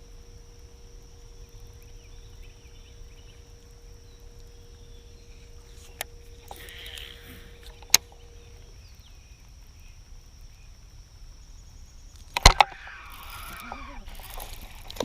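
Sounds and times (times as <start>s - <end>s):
steady high whine: 0.0s - 15.0s
sharp click: 12.3s - 12.8s.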